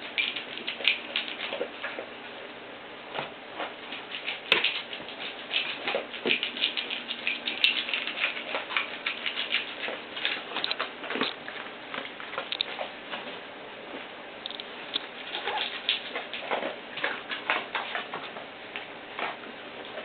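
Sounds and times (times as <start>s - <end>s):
puppies scrabbling: 0.0s - 2.1s, 3.2s - 13.3s, 15.0s - 18.5s.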